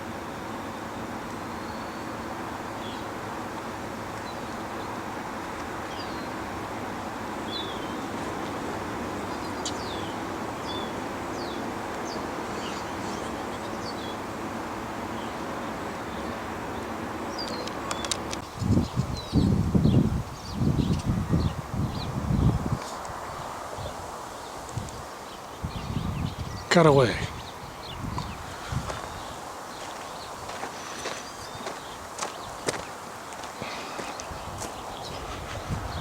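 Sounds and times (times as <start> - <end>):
small birds chirping: 0.2 - 36.0
sharp clicks: 17.4 - 18.4.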